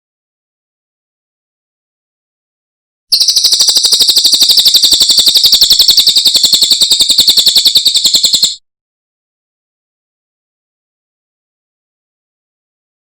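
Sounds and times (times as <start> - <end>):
songbird trilling: 3.1 - 8.6.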